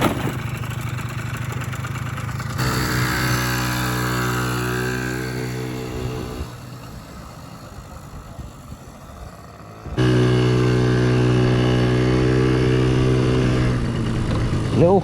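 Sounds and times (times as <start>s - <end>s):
two-stroke engine running: 0.0s - 15.0s.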